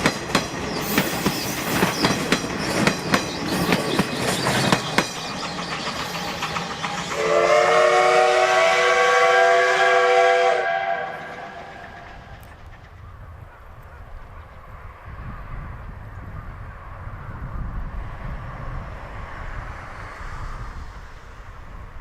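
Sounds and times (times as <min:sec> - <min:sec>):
train wheels clacking on rails: 0:00.0 - 0:16.4
steam whistle blast: 0:07.1 - 0:12.2.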